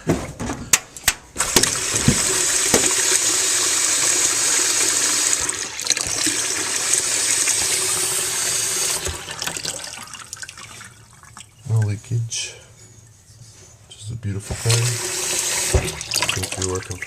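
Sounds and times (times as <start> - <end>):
water running into sink: 1.4 - 11.8, 14.4 - 17.0.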